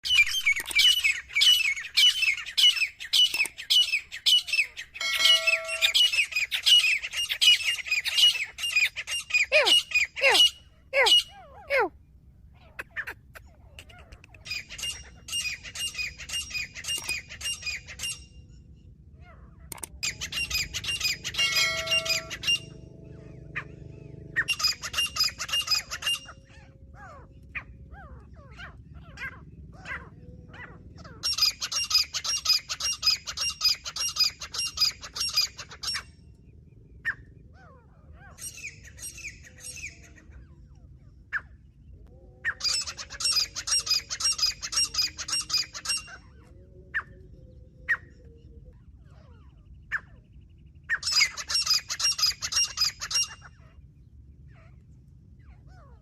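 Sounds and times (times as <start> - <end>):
francolin calling: 0.0 - 12.0, 19.8 - 30.2.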